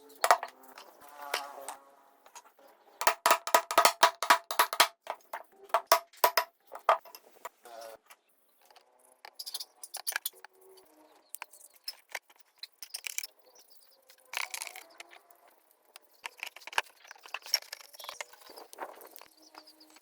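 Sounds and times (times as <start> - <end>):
metal parts and tools clinking: 0.1 - 1.8, 3.0 - 7.3, 14.4 - 15.1.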